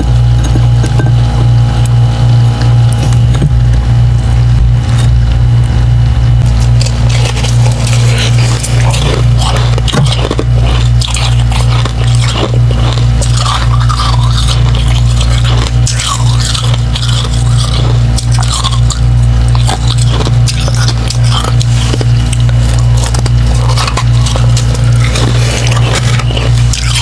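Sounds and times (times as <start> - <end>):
steady low hum: 0.0 - 27.0
chewing crunchy ice: 6.4 - 27.0.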